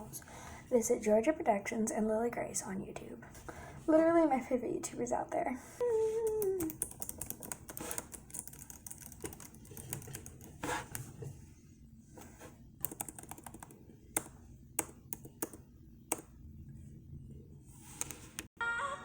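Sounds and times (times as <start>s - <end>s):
laptop keyboard typing: 6.6s - 11.1s, 12.8s - 16.3s.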